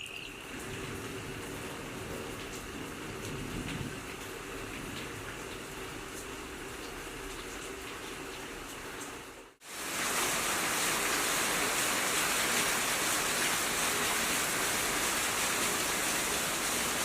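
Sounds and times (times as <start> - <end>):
heavy rain hissing: 9.5 - 17.0.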